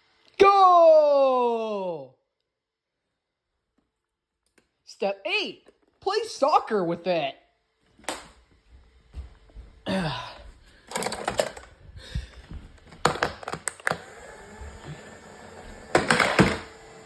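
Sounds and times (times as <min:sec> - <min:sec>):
hard plastic knocks and clatter: 0:12.8 - 0:14.0.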